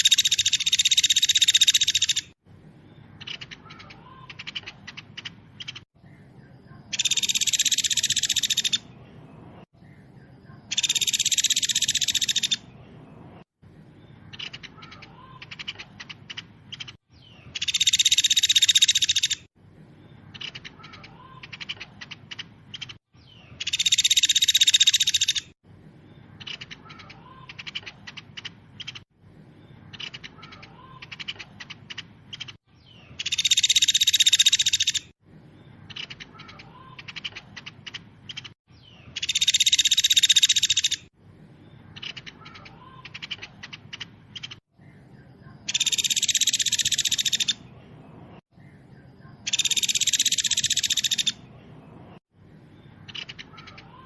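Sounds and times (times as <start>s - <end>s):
rapid high bird trilling: 0.0s - 2.4s, 6.9s - 9.0s, 10.7s - 12.8s, 14.3s - 19.5s, 20.3s - 25.6s, 29.9s - 35.2s, 35.9s - 41.1s, 45.6s - 47.7s, 49.4s - 51.5s, 53.0s - 54.0s
quiet bird chips and ticks: 0.0s - 12.8s, 13.4s - 54.0s.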